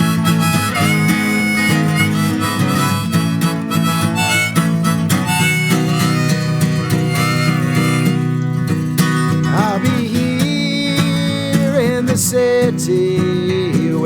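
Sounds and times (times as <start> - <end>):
harmonica solo: 0.0 - 10.3
strummed acoustic guitar: 0.0 - 14.0.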